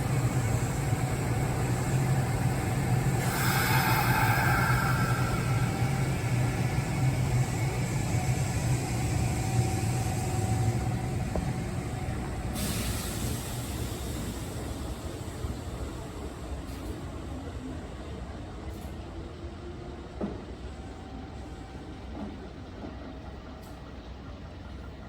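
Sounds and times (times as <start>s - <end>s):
electric train rumbling on track: 0.0s - 25.0s
hiss: 1.4s - 10.7s, 12.5s - 17.0s.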